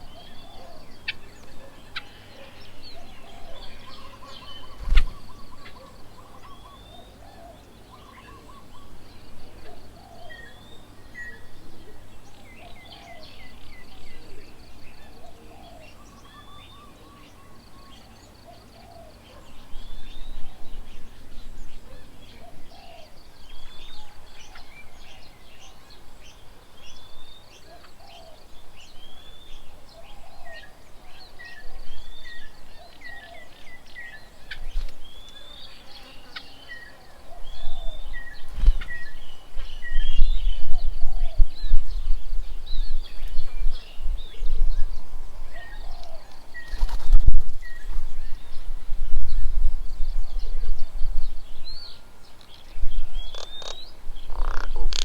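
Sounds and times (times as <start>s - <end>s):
birds calling and singing: 0.0s - 55.0s
wind buffeting microphone: 37.5s - 52.0s.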